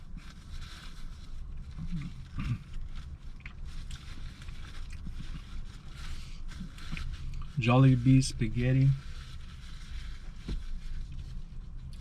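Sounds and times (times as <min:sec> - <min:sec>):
person chewing food: 0:01.5 - 0:05.4.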